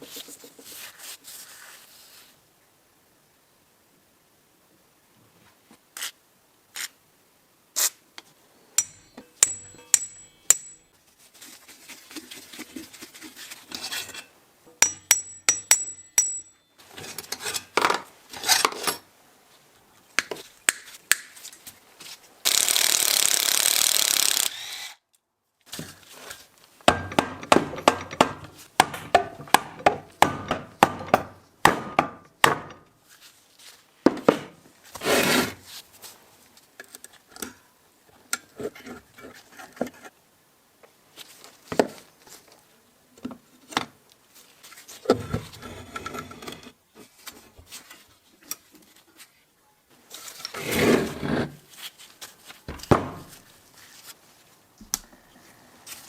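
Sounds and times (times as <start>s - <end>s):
taps and knocks on metal: 8.8s - 10.8s, 14.7s - 16.5s, 26.9s - 32.8s
ringing clinks of steel parts: 8.8s - 10.9s, 14.8s - 16.8s.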